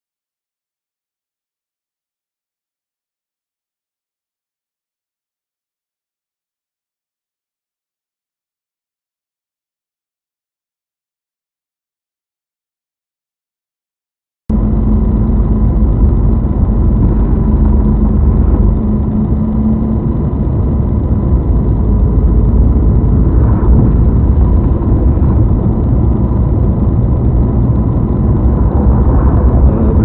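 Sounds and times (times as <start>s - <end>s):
vehicle engine and road noise: 14.5s - 30.0s.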